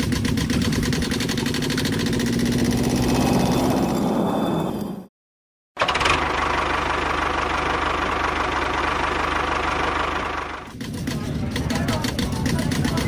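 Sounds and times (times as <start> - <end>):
motor running with fast pulse: 0.0 - 4.0.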